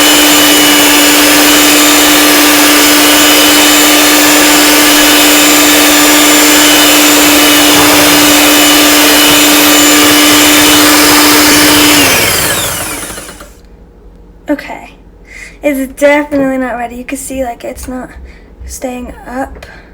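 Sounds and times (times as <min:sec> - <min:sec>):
electric mixer whining: 0:00.0 - 0:13.6.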